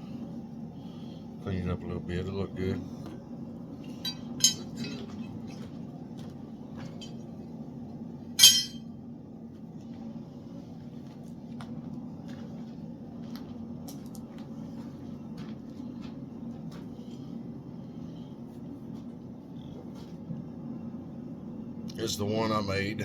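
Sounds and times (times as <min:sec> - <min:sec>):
steady low hum: 0:00.0 - 0:23.0
steel pieces clinking: 0:04.0 - 0:05.1, 0:08.4 - 0:08.8.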